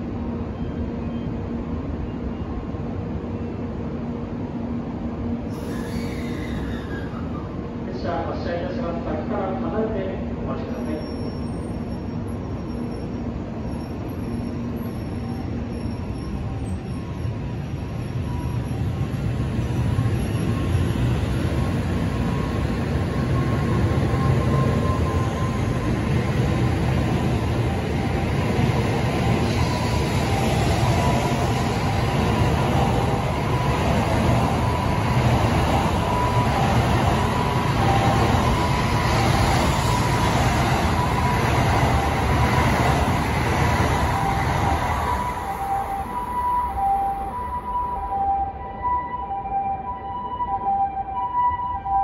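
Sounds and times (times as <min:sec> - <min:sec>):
train wheels rumbling: 0:11.1 - 0:47.5.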